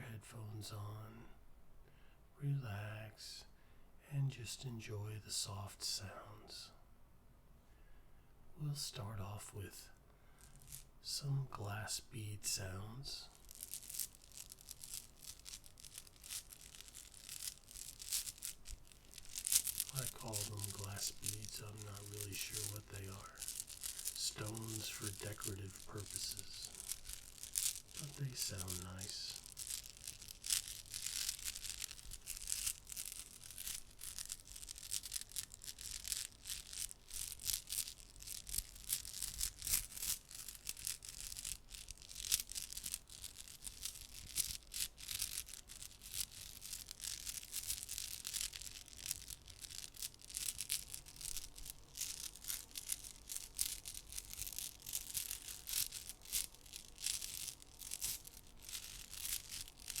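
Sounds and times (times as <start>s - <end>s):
glass stones clinking in hands: 13.3s - 60.0s.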